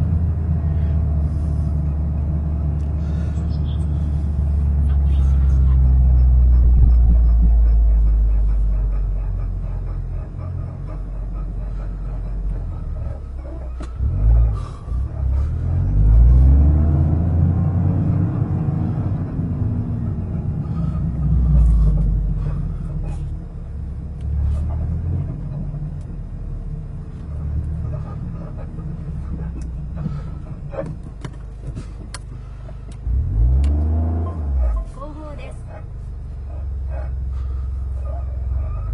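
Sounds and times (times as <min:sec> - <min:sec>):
car engine low rumble: 0:00.0 - 0:38.9.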